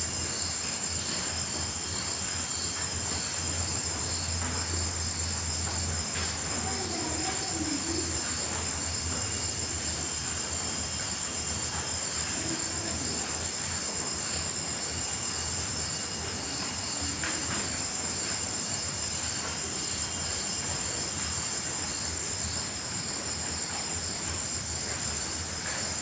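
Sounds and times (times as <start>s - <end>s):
background hiss: 0.0s - 26.0s
crickets and insects trilling: 0.0s - 26.0s.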